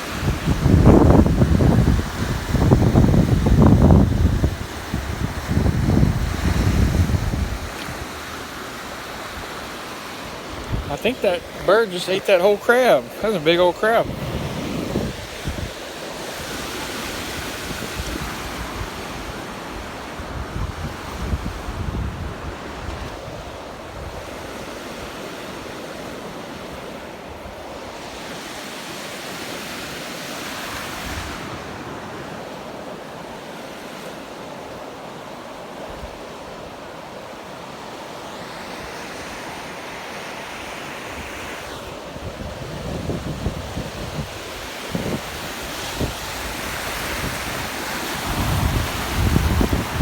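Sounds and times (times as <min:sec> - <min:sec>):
wind buffeting microphone: 0:00.0 - 0:09.6, 0:10.3 - 0:11.8, 0:13.2 - 0:19.4, 0:20.1 - 0:24.3, 0:42.1 - 0:50.0
surf washing onto beach: 0:00.0 - 0:50.0.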